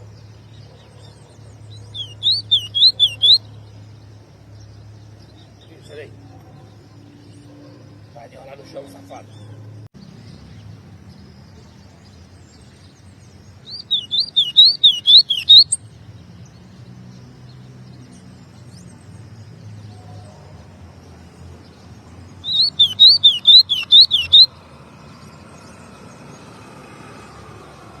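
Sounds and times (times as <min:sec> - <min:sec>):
bird whistling song: 0:00.4 - 0:03.7, 0:12.8 - 0:15.9, 0:22.4 - 0:24.6.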